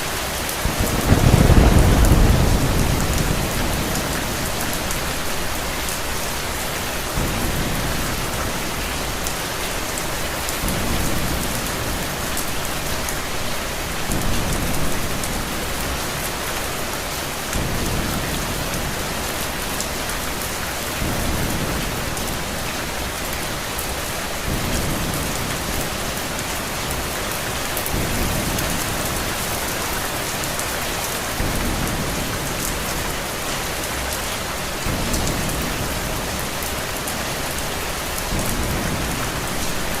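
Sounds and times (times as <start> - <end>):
heavy rain hissing: 0.0 - 40.0
distant thunder rumble: 0.6 - 13.0.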